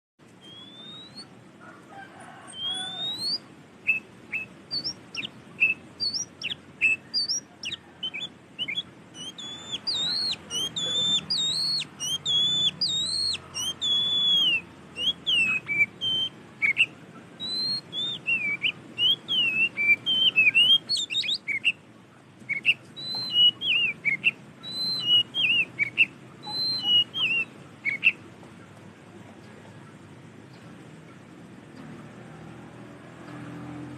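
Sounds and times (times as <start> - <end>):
bird singing whistled notes: 0.4 - 1.4, 2.3 - 21.8, 22.5 - 28.2.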